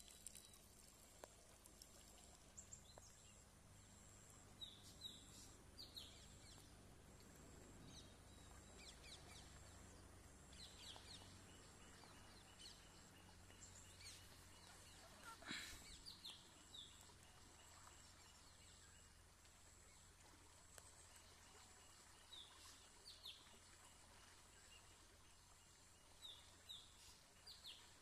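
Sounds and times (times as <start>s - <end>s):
low steady rumble: 0.0s - 26.4s
birds chirping: 7.8s - 19.1s.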